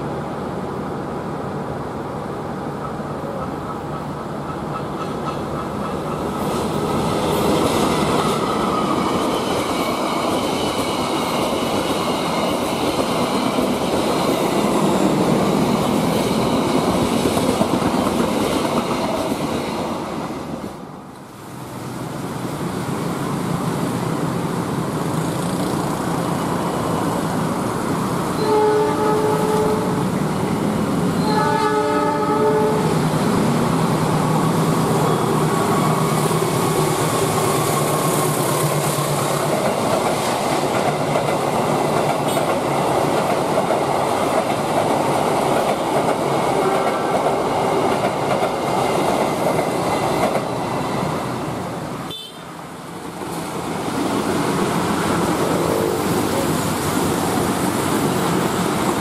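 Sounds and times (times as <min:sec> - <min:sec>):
road traffic passing: 0:00.0 - 0:59.0
train rumble and wheel clatter: 0:00.0 - 0:59.0
train horn blasts: 0:28.4 - 0:30.1, 0:31.2 - 0:32.9, 0:52.1 - 0:52.5.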